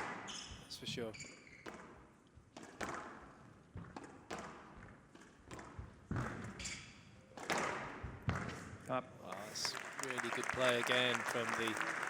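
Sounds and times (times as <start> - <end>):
squash ball smacks: 0.0 - 0.3, 1.6 - 6.6, 7.3 - 8.7.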